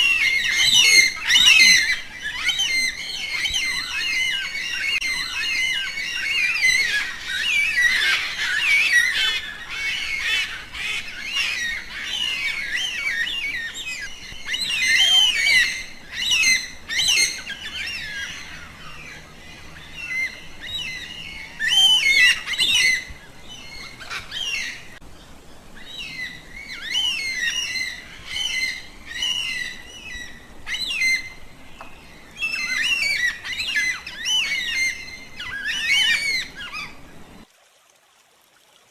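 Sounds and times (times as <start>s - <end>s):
cockatoos squawking: 0.0s - 25.0s, 32.2s - 37.2s.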